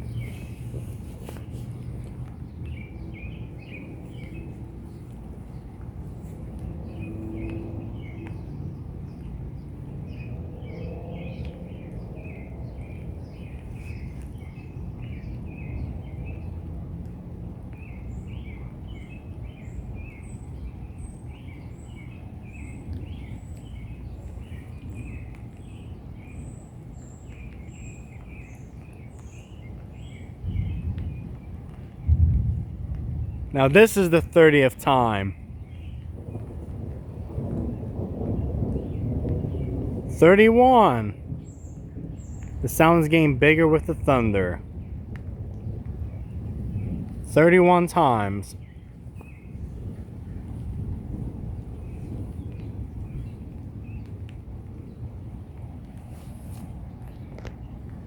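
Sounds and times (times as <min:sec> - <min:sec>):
birds chirping: 0:00.0 - 0:16.6, 0:17.7 - 0:45.0, 0:45.6 - 0:54.2
thunder rumbling: 0:30.4 - 0:55.8.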